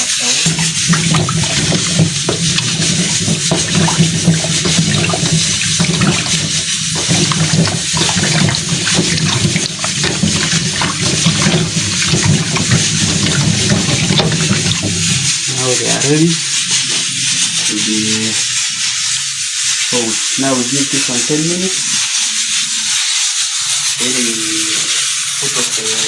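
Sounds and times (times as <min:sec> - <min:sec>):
water running and splashing: 0:00.0 - 0:21.2.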